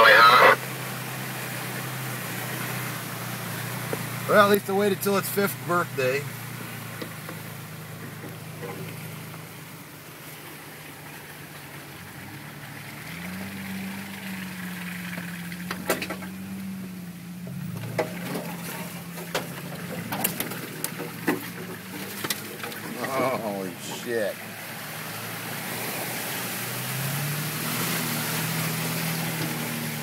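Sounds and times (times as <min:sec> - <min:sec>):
car engine running: 0:00.0 - 0:30.0
sharp knocks and clatters: 0:17.8 - 0:23.0.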